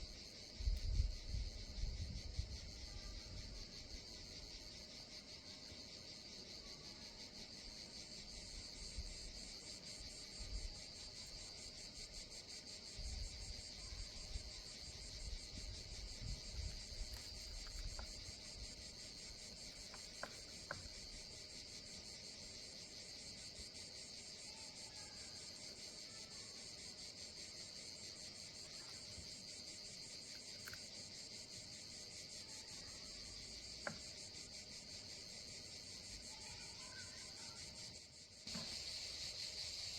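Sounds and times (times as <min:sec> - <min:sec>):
insect chorus chirring: 0:00.0 - 0:39.9
faint clicks: 0:30.3 - 0:30.9.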